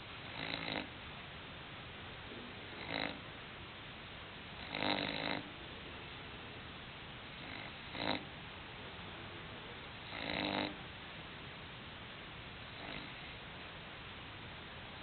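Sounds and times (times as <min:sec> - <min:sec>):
steady hiss: 0:00.0 - 0:15.0
dog snoring: 0:00.2 - 0:01.0, 0:02.7 - 0:03.3, 0:04.6 - 0:05.5, 0:07.3 - 0:08.3, 0:10.0 - 0:10.8, 0:12.7 - 0:13.4.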